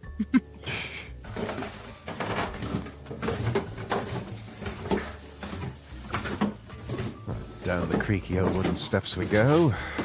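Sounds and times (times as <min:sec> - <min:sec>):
knocks and thuds in wooden room: 0:01.2 - 0:09.0.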